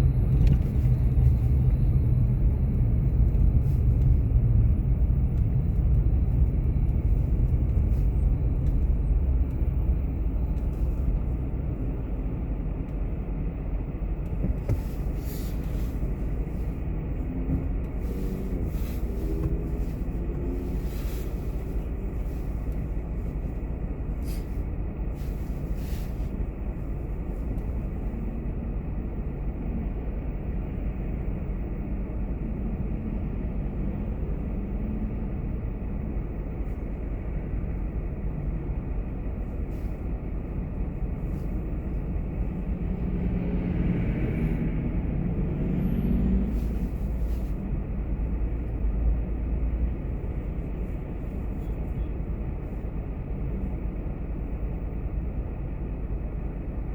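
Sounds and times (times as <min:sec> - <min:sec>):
car road and engine rumble: 0:00.0 - 0:56.9.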